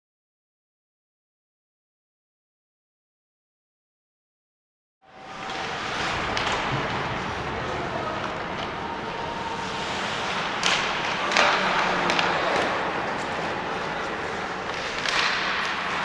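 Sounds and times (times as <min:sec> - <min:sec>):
rink and crowd noise: 0:05.0 - 0:16.0
hockey sticks and puck knocking: 0:05.3 - 0:07.2, 0:09.6 - 0:16.0.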